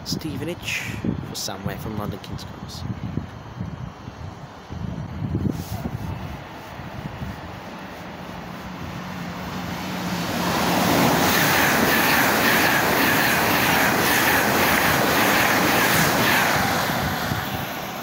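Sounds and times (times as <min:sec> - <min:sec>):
train passing at speed: 0:02.9 - 0:18.0.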